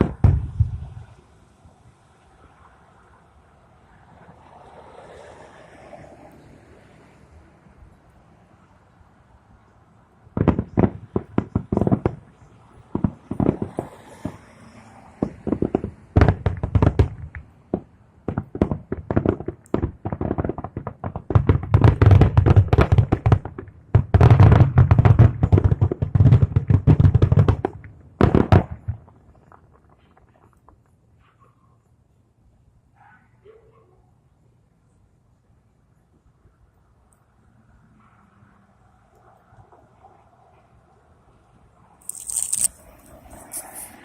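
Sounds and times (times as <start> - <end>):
fireworks bursting: 0.0 - 2.6, 10.3 - 31.5, 42.0 - 44.0.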